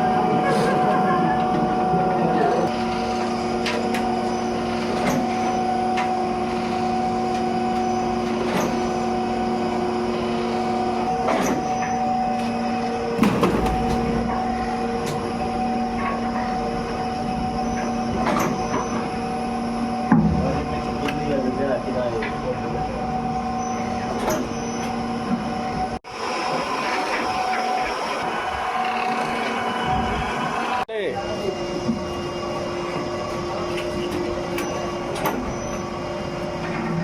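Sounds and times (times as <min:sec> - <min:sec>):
factory machinery humming: 0:00.0 - 0:37.0
knocks and clanks: 0:20.1 - 0:21.3.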